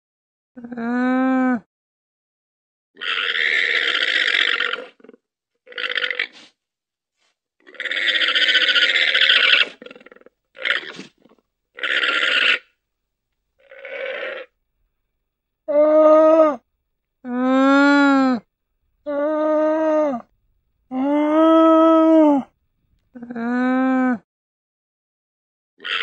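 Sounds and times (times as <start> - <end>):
llama calling: 7.6 - 12.8, 13.6 - 14.6, 17.2 - 20.3.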